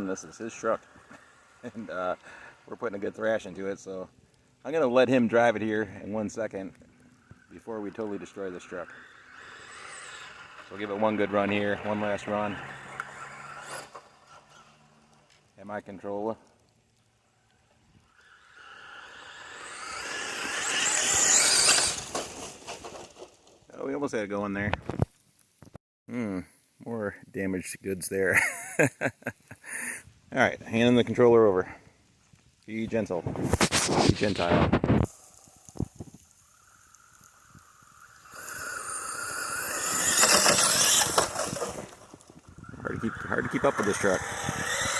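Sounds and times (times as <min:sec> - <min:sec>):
tyres tearing across ground: 0:06.6 - 0:15.6, 0:17.3 - 0:23.7, 0:33.2 - 0:44.9
electric motor whining: 0:08.0 - 0:15.3, 0:18.2 - 0:22.6, 0:37.2 - 0:42.2, 0:43.5 - 0:44.9
tyre noise: 0:18.7 - 0:23.7, 0:37.1 - 0:44.9.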